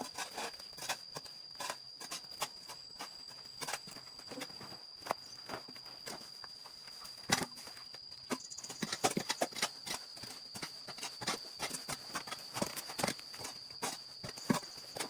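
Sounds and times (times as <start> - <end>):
knocks and clatter on hard debris: 8.3 - 15.0.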